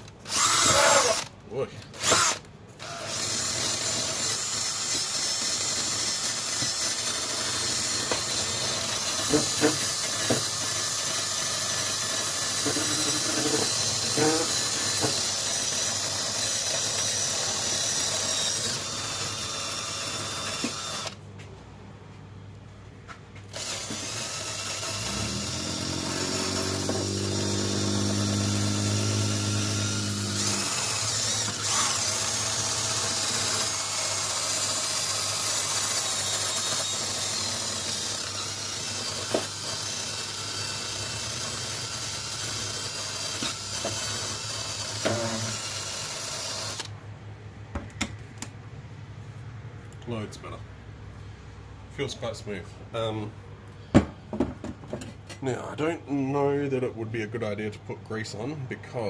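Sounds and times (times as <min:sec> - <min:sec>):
drill wire wheel scrubbing metal: 0:00.0 - 0:01.3, 0:02.0 - 0:21.2, 0:23.6 - 0:46.9.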